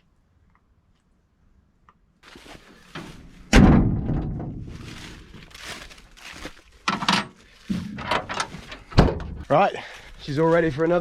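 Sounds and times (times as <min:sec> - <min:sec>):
heavy metal door slamming: 0:03.5 - 0:04.6.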